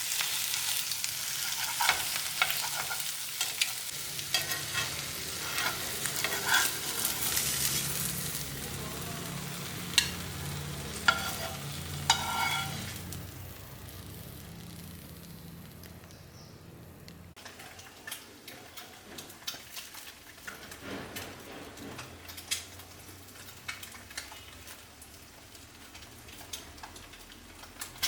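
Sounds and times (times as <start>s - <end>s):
food sizzling in a pan: 0.0s - 16.5s
utensil scraping a pan: 0.6s - 3.6s, 4.2s - 8.0s, 11.0s - 13.1s.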